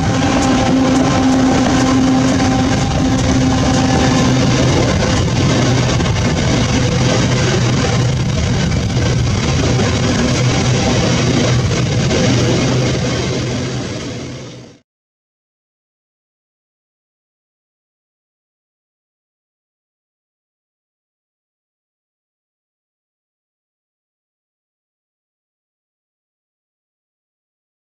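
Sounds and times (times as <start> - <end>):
diesel locomotives rumbling past: 0.0 - 14.8.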